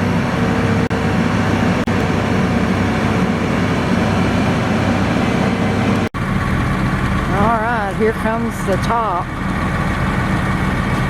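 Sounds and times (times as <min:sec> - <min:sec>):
heavy equipment engine humming: 0:00.0 - 0:11.0.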